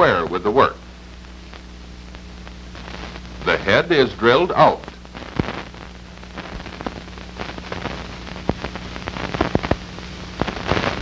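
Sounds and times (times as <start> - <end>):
film soundtrack crackle and pops: 0.0 - 11.0
low mains hum: 0.0 - 11.0
steady hiss: 0.0 - 11.0.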